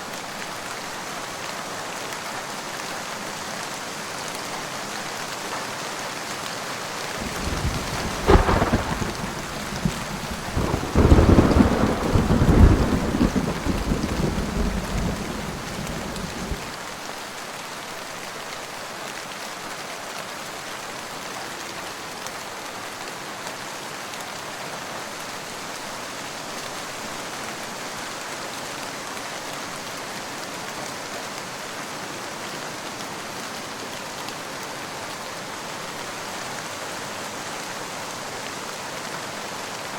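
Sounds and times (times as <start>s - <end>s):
heavy rain: 7.0s - 17.2s
thunder crack and rumble: 7.2s - 16.8s.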